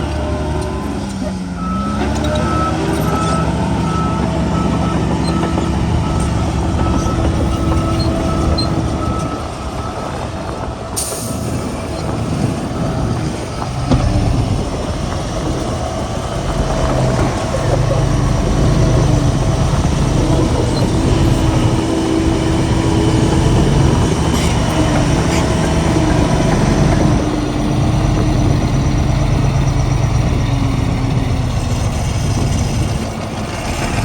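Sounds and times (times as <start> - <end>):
reversing alarm beeping: 0.0 - 15.0
diesel machinery engine under load: 0.0 - 34.0.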